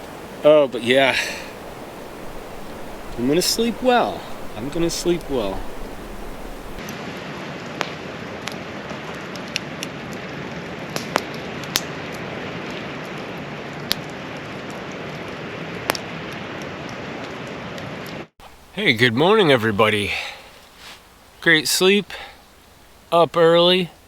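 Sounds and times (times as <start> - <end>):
campfire crackling and popping: 0.0 - 6.8, 10.9 - 15.2.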